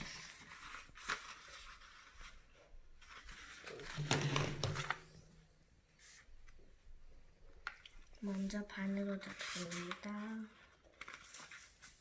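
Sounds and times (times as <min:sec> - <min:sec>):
paper rustling: 0:00.0 - 0:05.3, 0:07.6 - 0:12.0.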